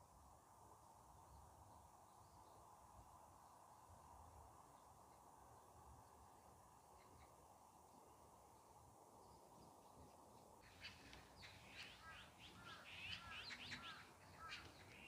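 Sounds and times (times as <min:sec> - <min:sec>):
faint outdoor hum: 0:00.0 - 0:15.0
small birds chirping: 0:06.8 - 0:15.0.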